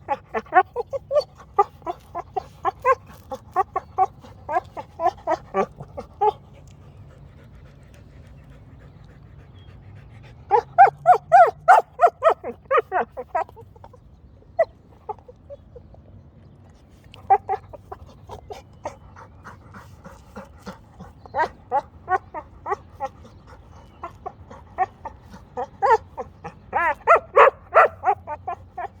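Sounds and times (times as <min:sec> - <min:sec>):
dog making high-pitched calls: 0:25.6 - 0:29.0.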